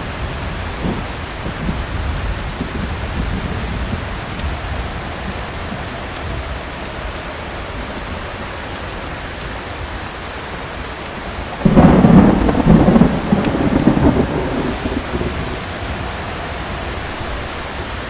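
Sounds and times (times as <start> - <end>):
heavy rain: 0.0 - 18.0
thunder rumbling: 11.2 - 18.0.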